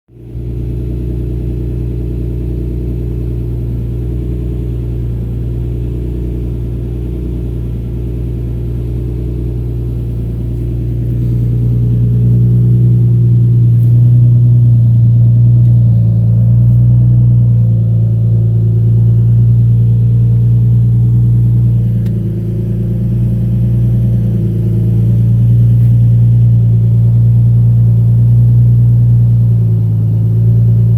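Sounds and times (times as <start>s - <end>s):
engine exhaust drone: 0.1s - 30.9s.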